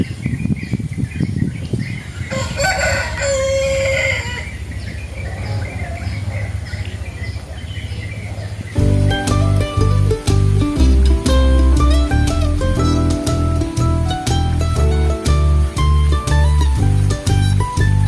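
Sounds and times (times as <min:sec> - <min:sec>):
rooster crowing: 0:02.2 - 0:04.6.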